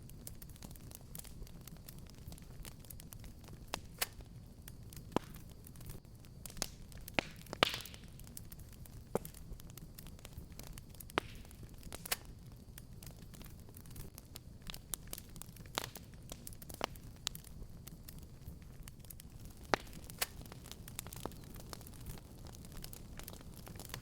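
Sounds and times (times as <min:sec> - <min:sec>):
fire crackles and pops: 0:00.0 - 0:24.0
low rumble of flames: 0:00.0 - 0:24.0.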